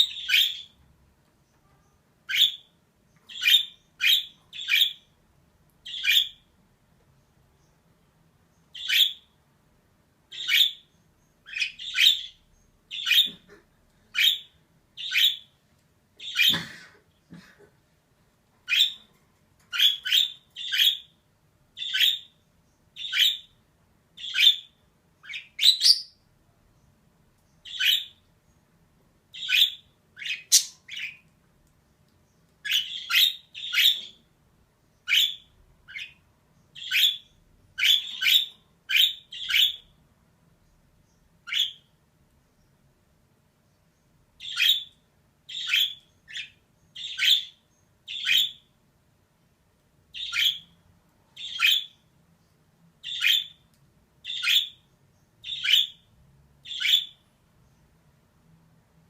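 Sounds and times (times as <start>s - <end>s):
budgerigar chirping: 0.0s - 0.8s, 2.3s - 2.7s, 3.3s - 5.1s, 5.8s - 6.5s, 8.7s - 9.3s, 10.3s - 13.5s, 14.1s - 15.5s, 18.7s - 19.1s, 19.7s - 21.2s, 21.8s - 22.3s, 23.0s - 23.6s, 24.2s - 26.2s, 27.6s - 28.2s, 29.3s - 31.2s, 32.6s - 34.2s, 35.1s - 36.2s, 36.8s - 39.9s, 41.4s - 41.9s, 44.4s - 48.7s, 50.1s - 50.8s, 51.4s - 52.0s, 53.0s - 53.6s, 54.2s - 54.8s, 55.4s - 57.2s.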